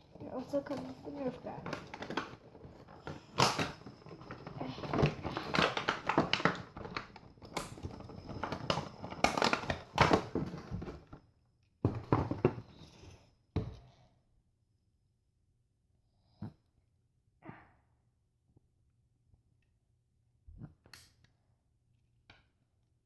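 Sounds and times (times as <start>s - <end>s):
plastic packaging crinkling: 0.2s - 11.0s.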